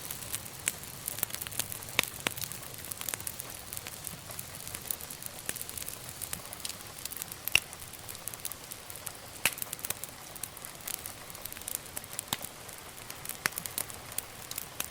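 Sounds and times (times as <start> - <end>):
soft steady fire hiss: 0.0 - 14.9
wood fire crackling and popping: 0.0 - 14.9.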